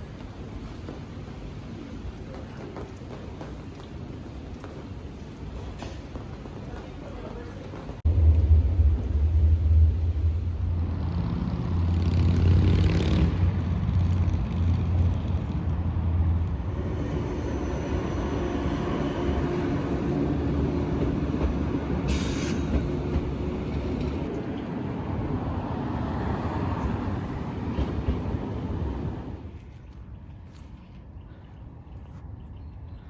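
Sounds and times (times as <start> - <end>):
large vehicle rumbling: 8.0 - 29.5
short hisses: 22.1 - 22.8.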